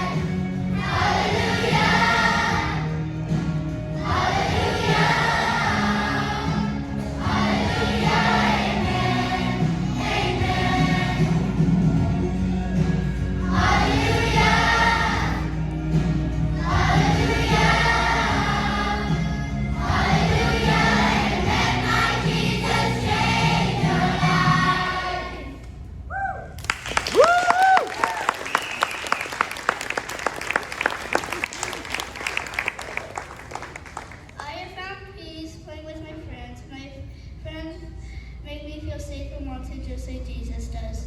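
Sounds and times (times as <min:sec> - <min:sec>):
children's choir singing: 0:00.0 - 0:03.0, 0:03.9 - 0:11.9, 0:13.1 - 0:15.7, 0:16.5 - 0:25.6.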